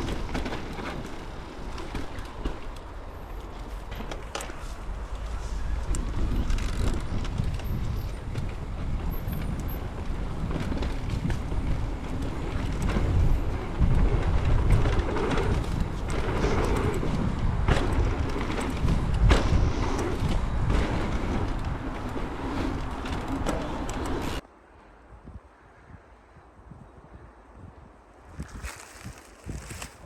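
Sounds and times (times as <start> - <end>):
bike tyres rumbling on dirt: 0.0 - 24.4, 28.3 - 30.0
wind buffeting microphone: 0.0 - 30.0
bike knocks and rattles: 3.5 - 24.4, 28.4 - 30.0.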